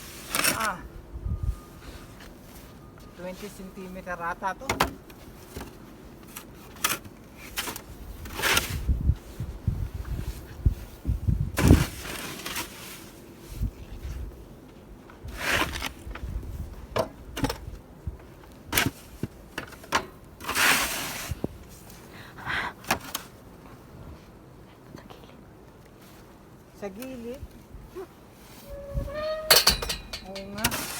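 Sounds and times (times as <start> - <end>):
shovel scraping snow: 11.6 - 13.1, 15.4 - 16.0, 20.4 - 21.4, 30.6 - 30.9.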